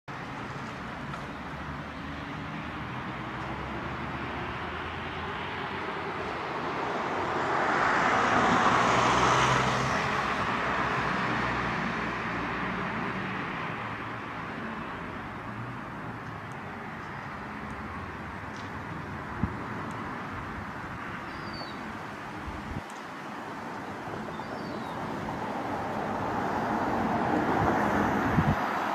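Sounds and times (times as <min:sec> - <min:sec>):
vehicle passing by: 0:00.5 - 0:15.8, 0:24.6 - 0:28.9.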